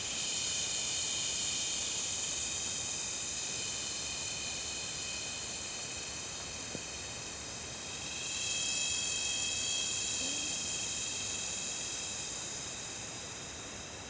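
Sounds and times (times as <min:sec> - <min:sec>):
insects shrilling: 0:07.8 - 0:13.6.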